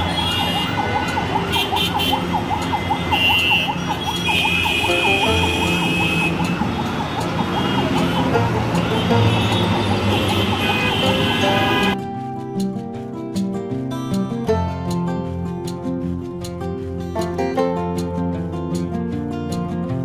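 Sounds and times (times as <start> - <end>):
warbling siren: 0.0 - 8.6
high horn-like tones: 0.0 - 12.0
traffic noise: 0.0 - 13.4.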